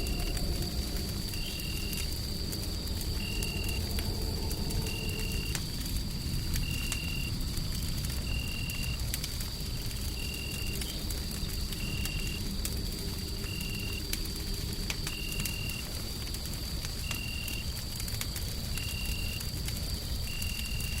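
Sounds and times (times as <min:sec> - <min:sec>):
thin high whine: 0:00.0 - 0:02.3
low rumbling hum: 0:00.0 - 0:08.2
wood fire crackling and popping: 0:00.0 - 0:21.0.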